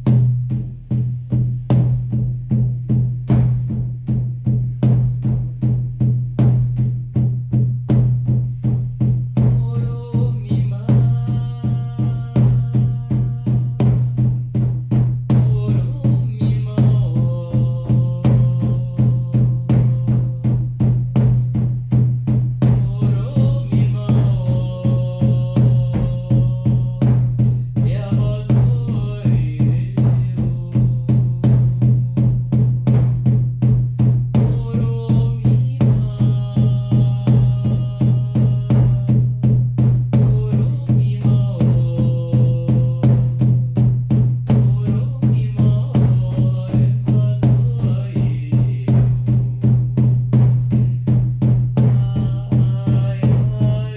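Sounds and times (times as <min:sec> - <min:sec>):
frame drums beating: 0:00.0 - 0:53.9
voices chanting held notes: 0:22.9 - 0:27.3, 0:34.5 - 0:39.2, 0:40.4 - 0:43.2, 0:44.7 - 0:49.0, 0:52.0 - 0:53.9.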